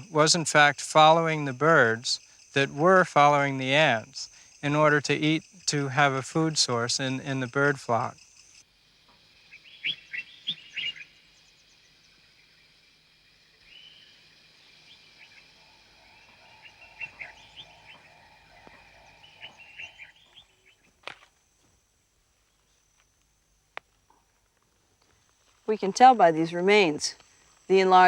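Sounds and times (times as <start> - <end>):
chirping calls of small animals: 9.3 - 12.8, 13.6 - 20.9.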